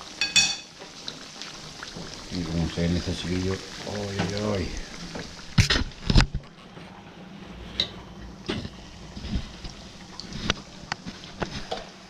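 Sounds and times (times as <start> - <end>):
food frying in oil: 0.0 - 12.0
plates and utensils clinking: 0.2 - 0.8.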